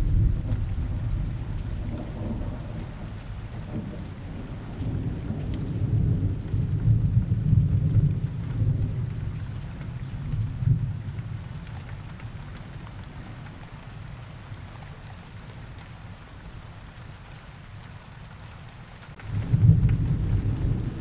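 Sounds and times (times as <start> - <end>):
rolling thunder: 0.0 - 9.2, 19.2 - 21.0
steady rain: 0.0 - 21.0.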